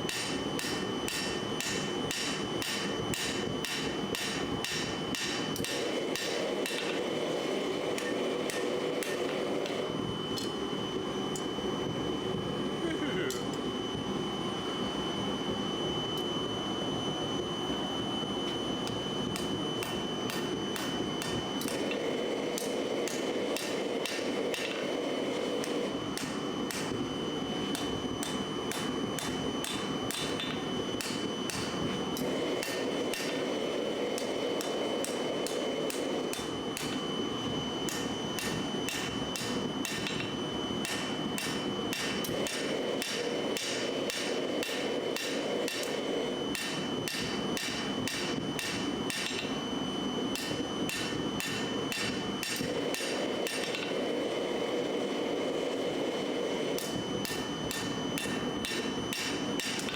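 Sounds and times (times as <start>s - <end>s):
hammer ringing on anvil: 0.1s - 7.0s, 19.4s - 24.8s, 27.7s - 31.8s, 34.2s - 37.0s, 37.9s - 49.6s, 50.4s - 54.0s, 56.8s - 59.9s.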